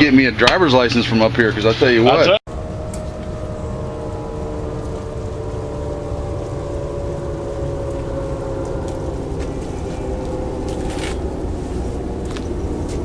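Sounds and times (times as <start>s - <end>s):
engine running: 1.9s - 13.0s.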